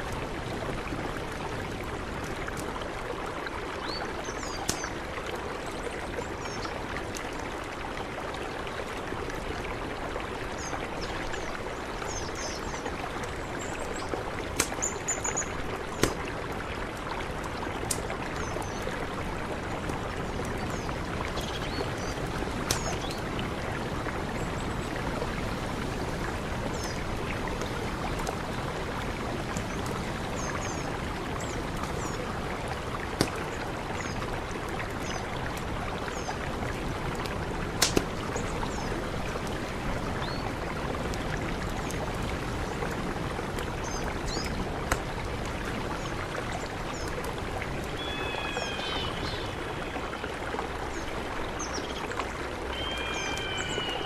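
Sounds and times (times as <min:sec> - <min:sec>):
mountain river rushing: 0:00.0 - 0:54.0
pitched bird call: 0:52.7 - 0:54.0.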